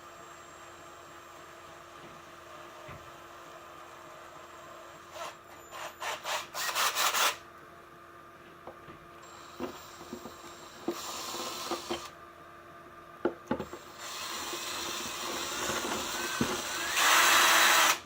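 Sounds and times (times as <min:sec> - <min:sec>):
drill motor whine: 0:03.5 - 0:07.4, 0:09.2 - 0:12.1, 0:13.7 - 0:18.0.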